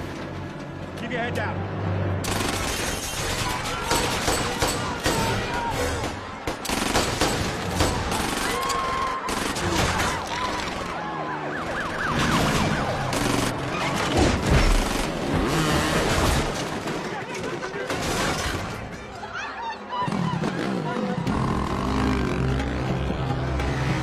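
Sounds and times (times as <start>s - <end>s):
engines rumbling: 0.0s - 24.0s
gunfire bursts: 2.2s - 8.6s
wailing siren: 8.5s - 14.0s.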